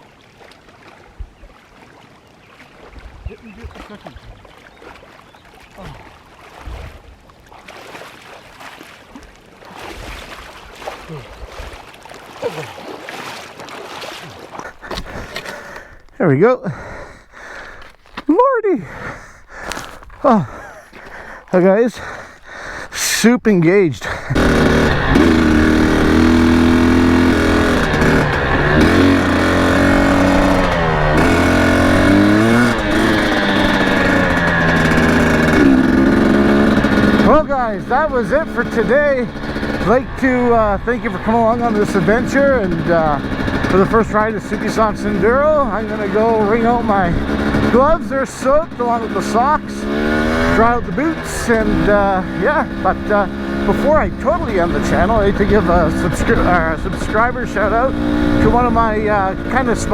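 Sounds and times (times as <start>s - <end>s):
water sloshing and splashing: 0.0s - 16.2s
person grunting: 12.4s - 12.8s, 18.7s - 23.2s, 24.0s - 24.9s
dirt bike engine revving: 14.6s - 16.2s, 16.8s - 59.9s.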